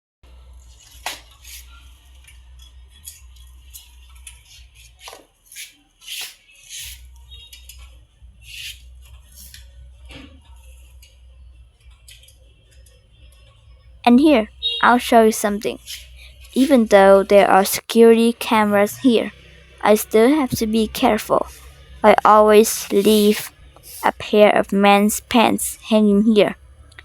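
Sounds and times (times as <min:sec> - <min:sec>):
low steady hum: 0:06.9 - 0:27.0.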